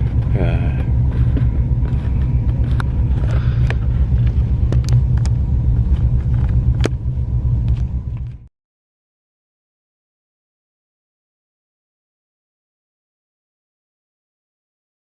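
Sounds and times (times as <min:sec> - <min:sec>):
car driving rumble: 0:00.0 - 0:08.5.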